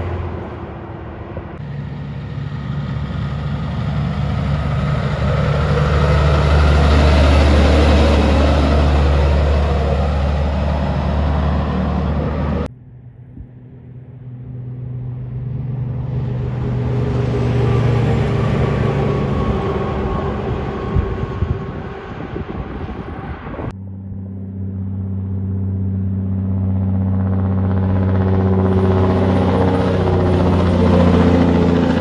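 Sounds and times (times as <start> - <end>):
diesel truck engine running: 0.0 - 12.7, 16.0 - 23.5, 27.9 - 32.0
truck passing by: 0.0 - 12.7, 13.6 - 32.0.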